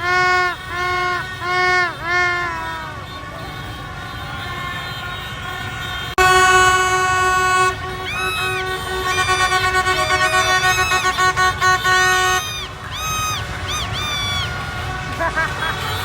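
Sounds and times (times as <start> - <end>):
long horn blast: 0.0 - 3.0, 5.4 - 12.9
crowd noise: 0.0 - 16.0
horn toots: 0.0 - 16.0
traffic noise: 0.0 - 16.0.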